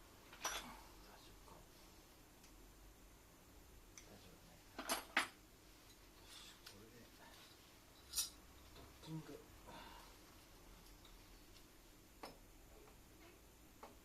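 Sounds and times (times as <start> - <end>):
light clinks of hard objects: 7.4 - 8.9.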